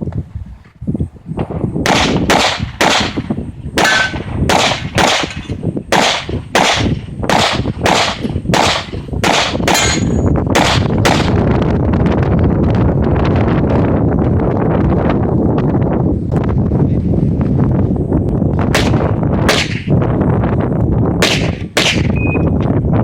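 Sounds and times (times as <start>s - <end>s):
handgun shots: 1.9s - 3.2s, 3.8s - 11.3s, 18.8s - 19.9s, 21.2s - 22.2s.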